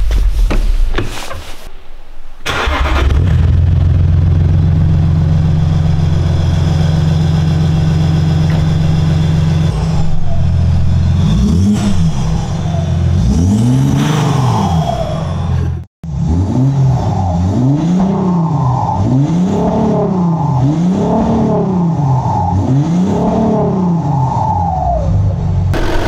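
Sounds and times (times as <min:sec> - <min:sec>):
diesel engine cranking and starting: 0:02.4 - 0:15.9, 0:25.7 - 0:26.0
diesel engine idling: 0:02.5 - 0:13.8
engine revving: 0:02.5 - 0:24.4, 0:25.7 - 0:26.0.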